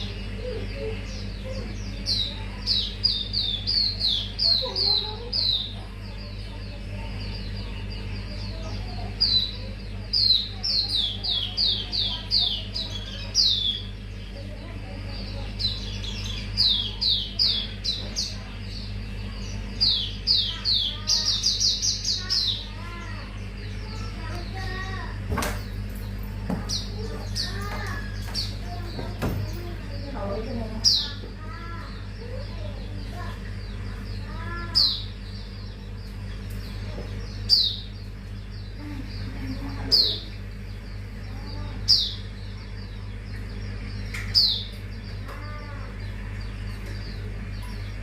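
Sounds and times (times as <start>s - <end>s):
bird singing high chirps: 0.0s - 25.2s
steady low hum: 0.0s - 48.0s.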